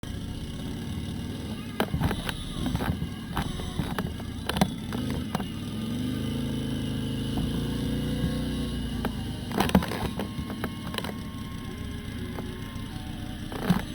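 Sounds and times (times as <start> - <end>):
motorcycle engine running: 0.0 - 13.9
knocks and taps: 1.7 - 5.5, 7.4 - 11.2.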